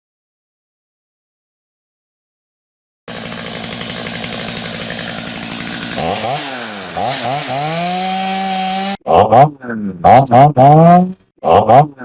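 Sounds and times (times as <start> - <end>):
chainsaw cutting wood: 3.1 - 9.0.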